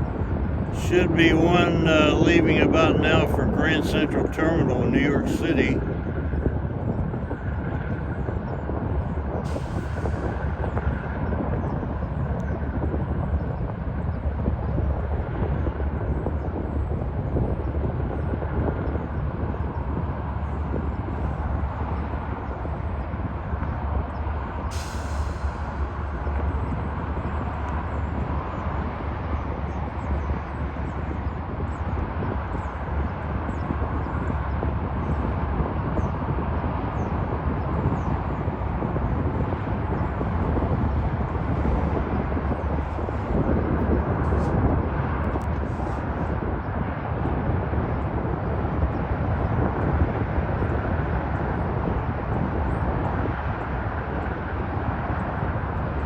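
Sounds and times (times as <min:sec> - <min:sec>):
distant diesel locomotive rumble: 0:00.0 - 0:56.0.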